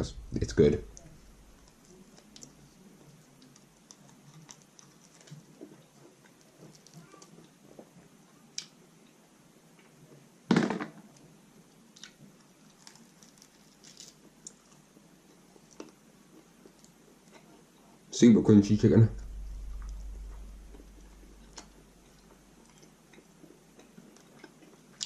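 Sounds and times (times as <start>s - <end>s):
chewing crispy chicken skin: 1.3s - 8.8s, 11.7s - 17.8s, 21.4s - 25.0s.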